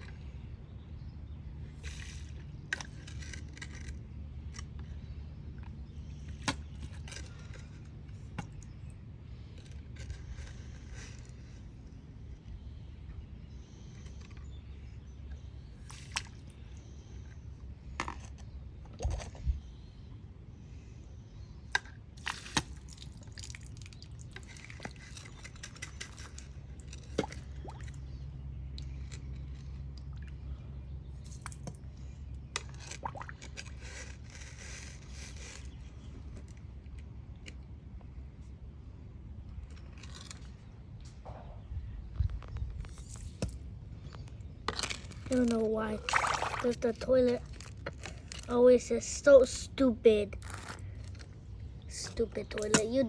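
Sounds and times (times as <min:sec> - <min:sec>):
steady low hum: 0:00.0 - 0:53.0
water dripping and sloshing: 0:22.2 - 0:28.1, 0:32.6 - 0:33.7, 0:44.8 - 0:48.5.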